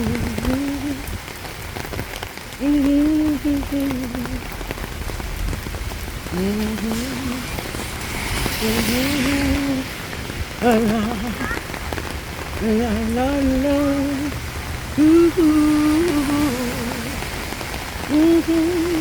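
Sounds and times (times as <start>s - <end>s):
woman humming a slow tune: 0.0s - 1.1s, 18.1s - 19.0s
steady rain falling: 0.0s - 19.0s.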